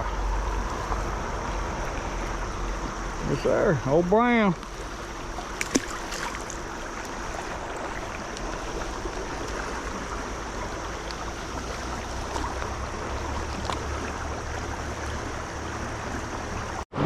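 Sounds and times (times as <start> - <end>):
low rumble: 0.0 - 3.4
stream water rushing: 0.0 - 17.0.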